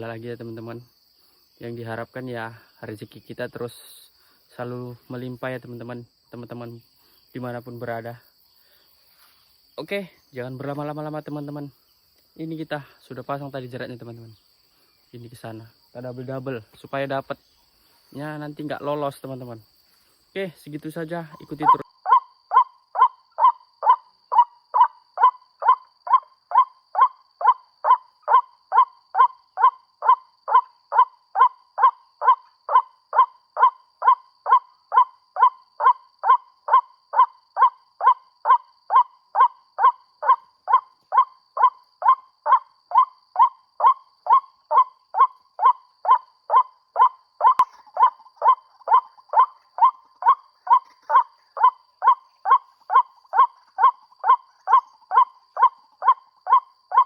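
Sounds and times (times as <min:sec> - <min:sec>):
recorded bird call repeating: 0:21.0 - 0:57.0.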